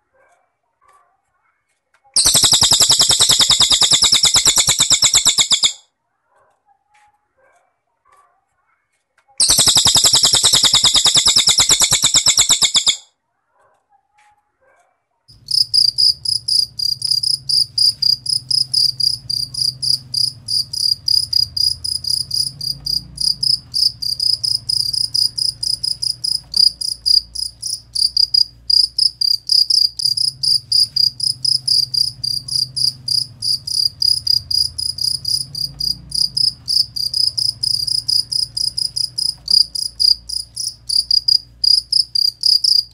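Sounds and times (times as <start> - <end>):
cricket chirping: 2.2 - 5.8, 9.4 - 13.0, 15.3 - 42.9
fast high trill: 2.2 - 5.8, 9.4 - 13.0, 15.4 - 42.9
faint low hum: 15.3 - 42.9.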